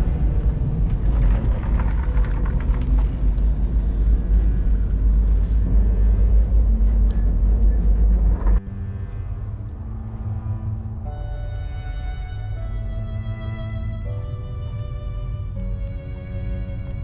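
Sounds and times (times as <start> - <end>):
rattling and clicks: 0.0 - 5.6
train rumbling on rails: 0.0 - 17.0.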